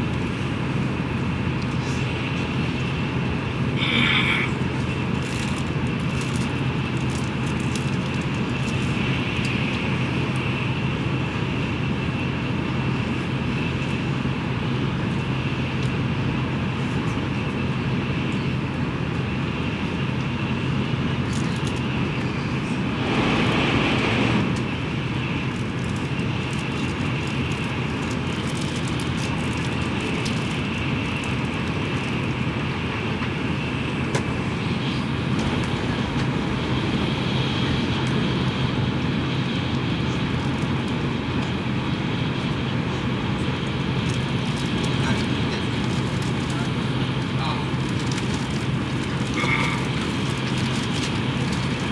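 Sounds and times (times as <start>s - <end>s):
train cabin running noise: 0.0s - 51.9s
brief rush of air: 22.8s - 24.8s.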